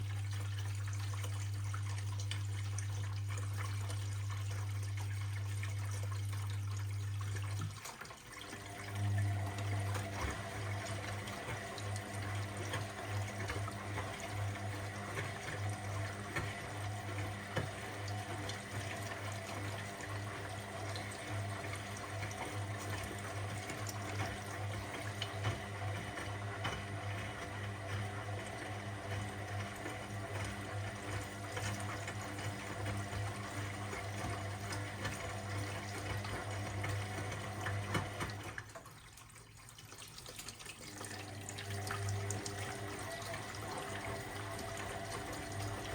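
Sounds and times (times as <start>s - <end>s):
washing machine hum: 0.0s - 45.9s
water running in: 0.0s - 45.9s.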